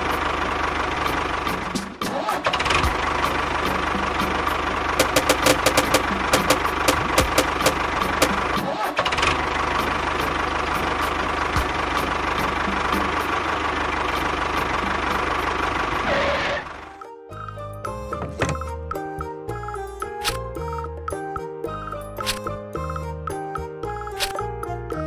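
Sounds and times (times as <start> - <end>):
engine running: 0.0 - 17.1
rapid knocking clicks: 5.0 - 8.4.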